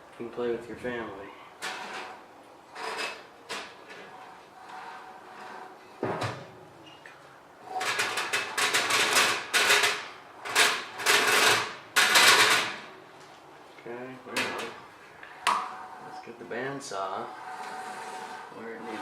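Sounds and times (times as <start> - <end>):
metal scraping and rattling: 1.6 - 6.0, 15.6 - 19.0.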